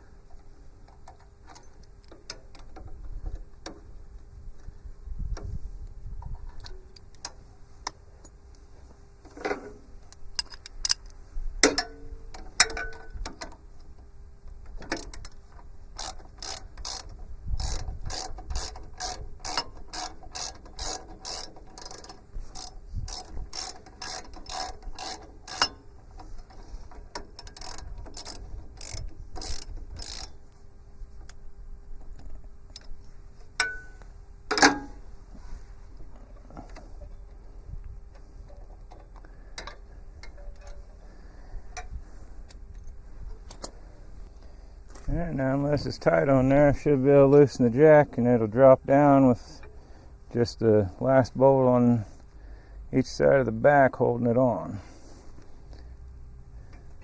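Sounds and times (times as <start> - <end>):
socket ratchet clicking: 16.0 - 25.8, 27.1 - 30.4
metal tools clanking: 33.4 - 35.1.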